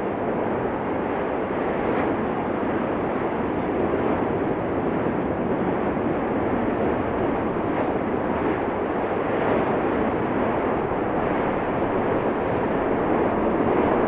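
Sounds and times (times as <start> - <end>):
volcano rushing noise: 0.0 - 14.0.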